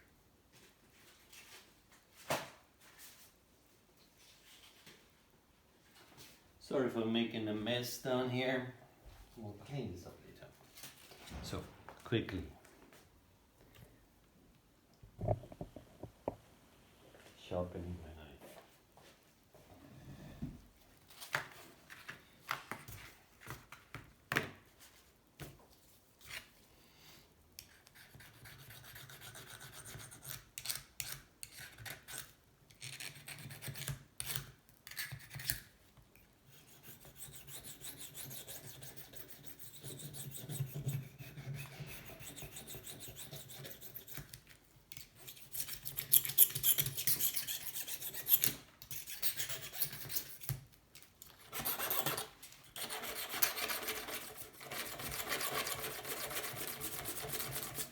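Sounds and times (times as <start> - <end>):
knife being sharpened: 42.0 - 50.5.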